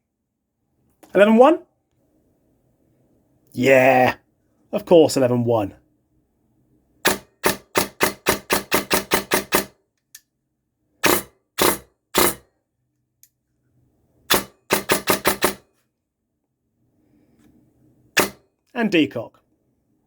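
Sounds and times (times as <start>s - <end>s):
airsoft rifle firing: 7.0s - 9.7s, 14.3s - 15.6s, 18.2s - 18.4s.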